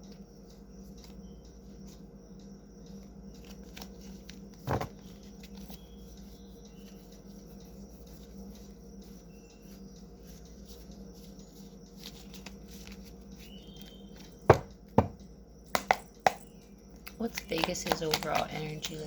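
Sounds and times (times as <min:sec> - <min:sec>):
steady low hum: 0:00.0 - 0:19.0
cards being handled: 0:03.3 - 0:05.8, 0:10.3 - 0:14.6, 0:17.0 - 0:19.0
sharp knocks: 0:14.5 - 0:15.2.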